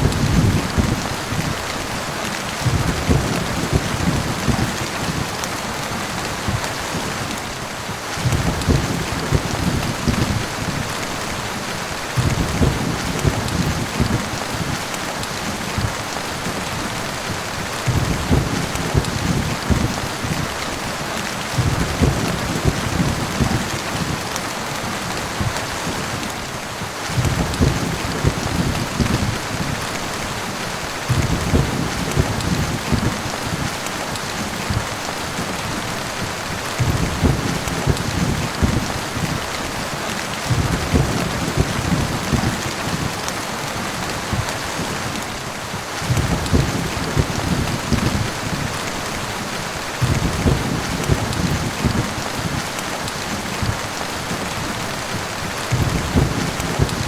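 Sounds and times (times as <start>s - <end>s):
low rumble of thunder: 0.0s - 1.6s, 2.6s - 5.4s, 6.3s - 11.4s, 12.0s - 14.8s, 17.5s - 20.6s, 21.5s - 24.3s, 27.0s - 30.2s, 30.9s - 35.1s, 36.0s - 39.5s, 40.5s - 43.2s, 45.7s - 54.1s, 55.6s - 57.0s
heavy rain pouring: 0.0s - 57.0s.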